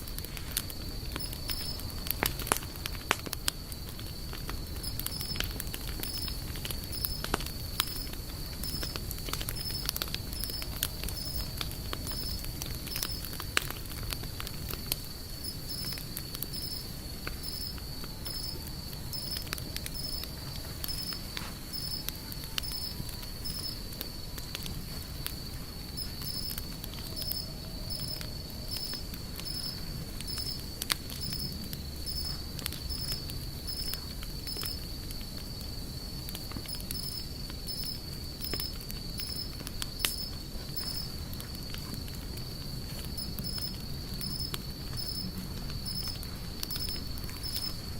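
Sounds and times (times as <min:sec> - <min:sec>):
campfire crackling and popping: 0:00.0 - 0:47.9
insect trilling: 0:01.2 - 0:01.9, 0:04.8 - 0:08.9, 0:09.5 - 0:13.2, 0:15.4 - 0:23.8, 0:27.1 - 0:34.8, 0:36.7 - 0:41.1, 0:43.2 - 0:45.2, 0:45.8 - 0:47.8.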